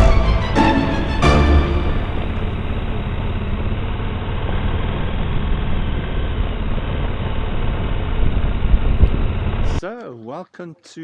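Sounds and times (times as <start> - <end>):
motorcycle engine: 0.5 - 9.8
wind rumble on microphone: 8.2 - 9.8.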